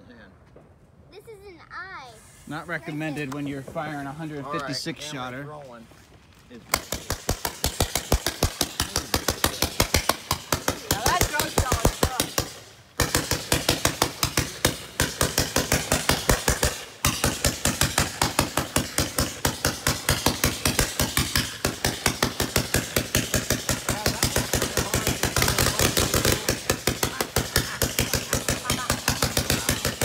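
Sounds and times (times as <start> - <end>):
firework cake bangs: 6.7 - 30.0.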